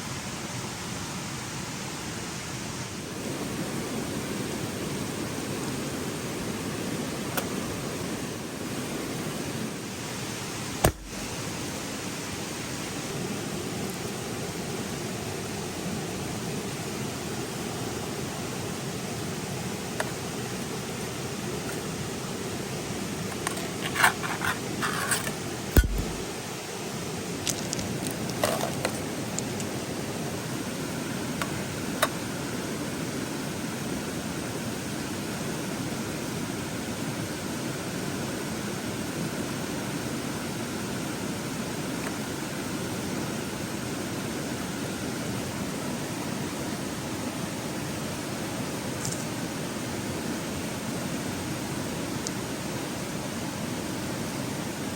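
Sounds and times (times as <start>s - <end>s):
river flowing: 0.0s - 54.9s
sharp thump: 10.8s - 11.2s, 25.8s - 26.3s
scraping and rustling handling noise: 23.2s - 26.3s, 27.4s - 29.7s.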